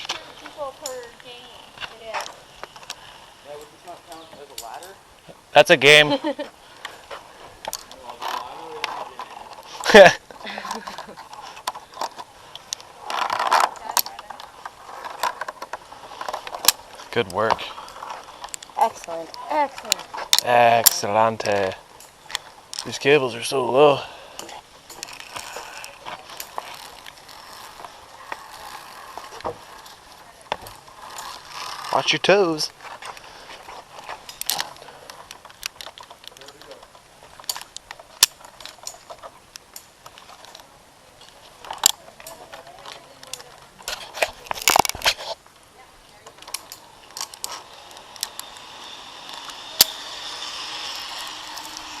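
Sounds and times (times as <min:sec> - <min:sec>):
metallic clicks of climbing gear: 0:00.0 - 0:52.0
steady hiss: 0:45.3 - 0:52.0.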